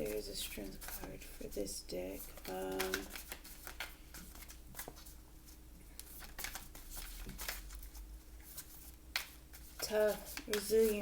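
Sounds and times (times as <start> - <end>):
cards clicking and rustling: 2.3 - 5.1, 6.0 - 11.0.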